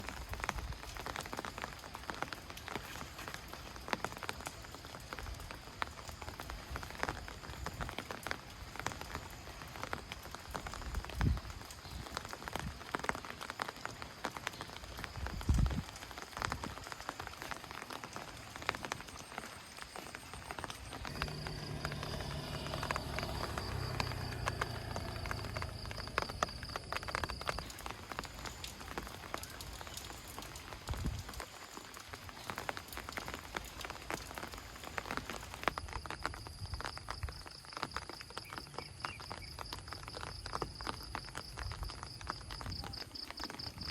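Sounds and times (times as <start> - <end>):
rain falling: 0.0 - 43.9.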